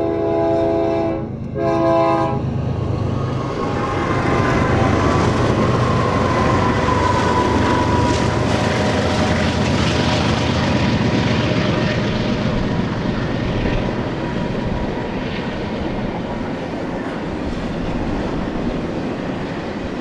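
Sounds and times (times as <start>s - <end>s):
locomotive horn blast: 0.0s - 2.5s
locomotive engine rumble: 0.0s - 20.0s
wheel-on-rail noise: 2.5s - 20.0s.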